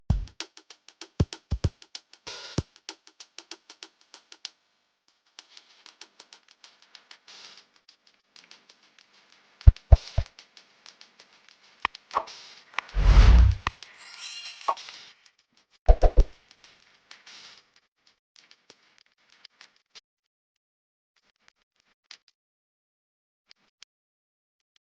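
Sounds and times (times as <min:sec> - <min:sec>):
low thumps: 0:09.7 - 0:10.2
sharp clicks and taps: 0:09.7 - 0:10.3, 0:15.9 - 0:16.3.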